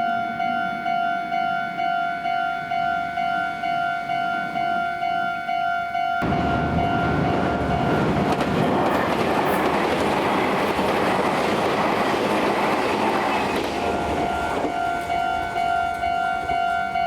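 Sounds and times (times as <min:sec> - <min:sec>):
level crossing warning bell: 0:00.0 - 0:09.4, 0:13.0 - 0:17.0
train wheels rushing on rails: 0:06.2 - 0:17.0.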